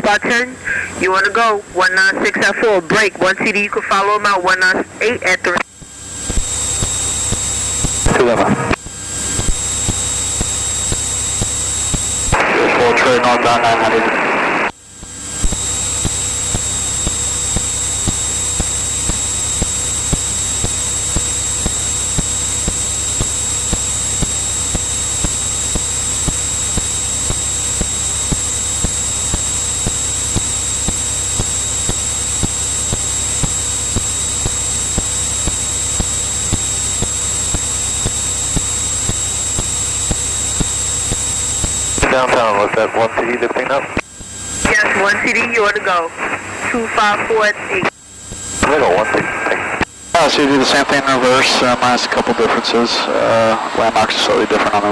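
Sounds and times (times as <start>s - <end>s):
high-pitched whine: 0.0s - 54.9s
aircraft engine and airframe hiss: 0.6s - 1.1s.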